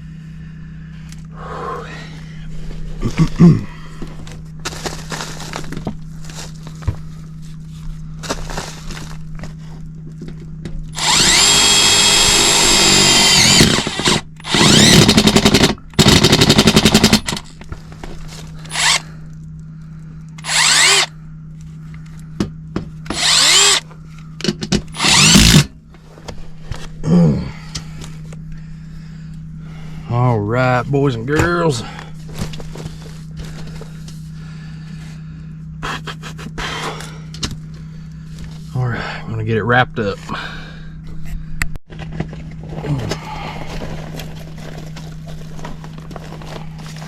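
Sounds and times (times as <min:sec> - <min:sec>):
cordless drill running: 0:10.9 - 0:17.6, 0:18.6 - 0:19.0, 0:20.4 - 0:21.1, 0:23.0 - 0:23.8, 0:24.9 - 0:25.7.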